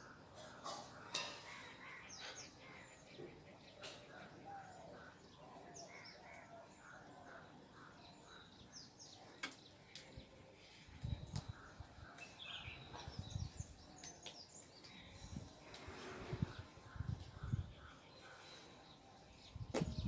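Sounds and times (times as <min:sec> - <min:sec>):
faint birds chirping: 0:00.0 - 0:20.0.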